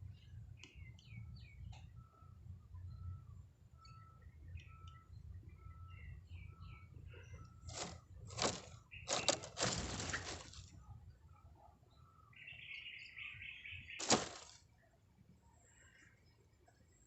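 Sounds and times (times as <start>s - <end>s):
bird wings flapping: 7.7s - 10.7s, 14.0s - 14.6s.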